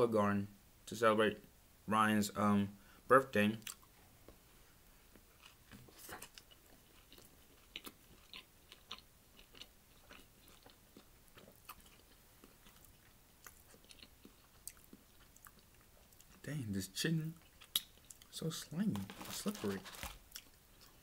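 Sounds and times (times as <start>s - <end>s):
wet chewing clicks and smacks: 5.4s - 16.4s, 17.4s - 18.4s.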